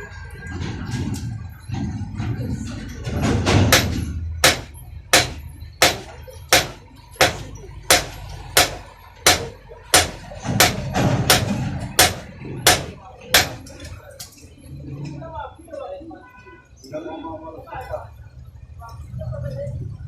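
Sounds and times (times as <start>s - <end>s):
hammer striking metal on anvil: 3.7s - 13.7s.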